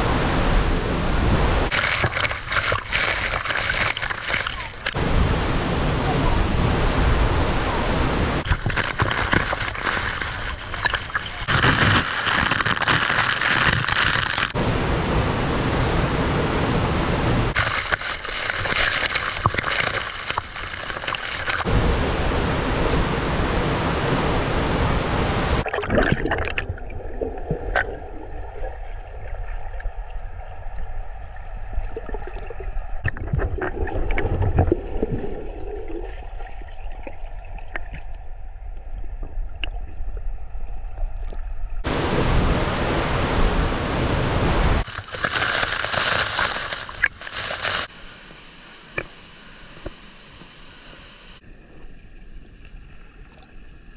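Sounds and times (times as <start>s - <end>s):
waterfall rushing water: 5.0s - 8.4s, 14.6s - 17.6s, 21.6s - 25.6s, 41.9s - 44.9s.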